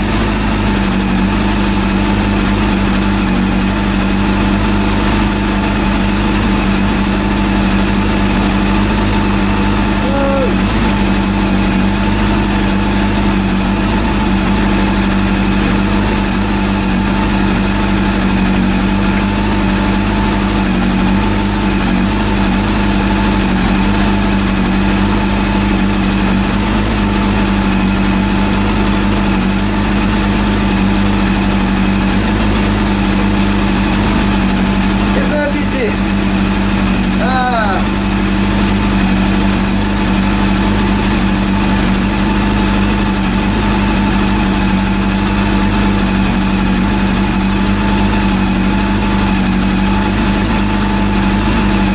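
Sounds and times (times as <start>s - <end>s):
motorcycle engine idling: 0.0s - 51.9s.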